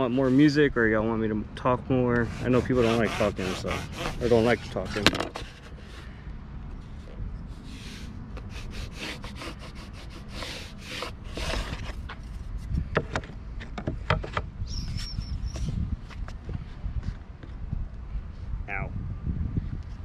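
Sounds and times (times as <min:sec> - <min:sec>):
sanding strokes on wood: 0:00.0 - 0:00.7, 0:02.2 - 0:06.0, 0:07.5 - 0:12.0.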